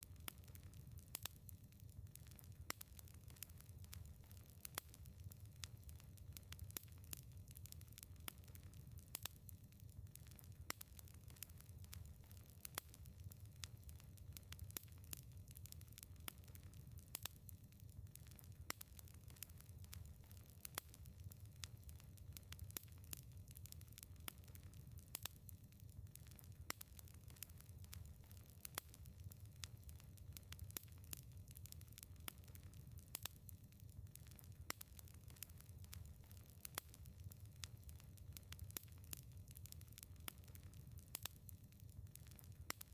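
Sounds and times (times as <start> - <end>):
low rumble of flames: 0.0 - 42.9
wood fire crackling: 0.0 - 42.9.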